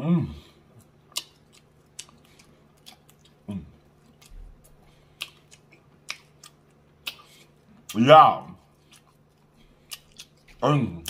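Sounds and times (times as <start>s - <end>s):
low voice hum: 0.0s - 0.6s
wet chewing mouth clicks: 1.1s - 3.4s, 4.0s - 7.6s.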